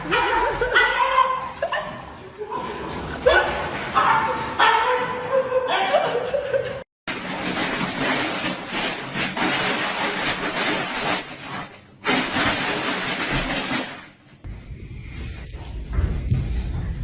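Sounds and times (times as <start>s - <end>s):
person laughing: 5.2s - 6.8s.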